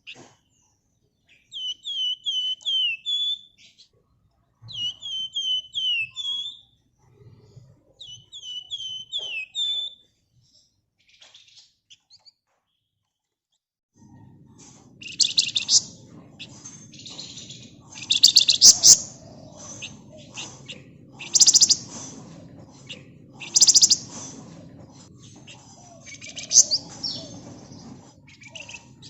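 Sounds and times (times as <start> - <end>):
songbird singing whistled notes: 1.3 - 3.8, 4.6 - 6.8, 8.0 - 10.0, 15.0 - 16.0, 16.9 - 22.0, 22.8 - 24.2, 25.4 - 29.0.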